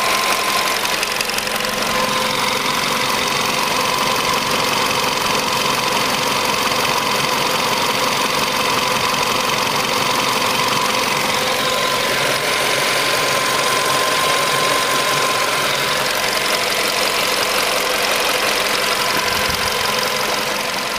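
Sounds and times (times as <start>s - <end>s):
car engine idling: 0.0s - 20.9s
steady whine: 10.7s - 20.9s.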